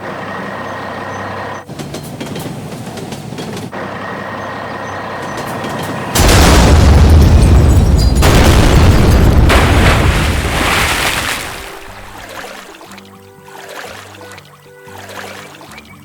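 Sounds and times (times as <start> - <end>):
loud boom with rushing roar: 6.2 - 11.0.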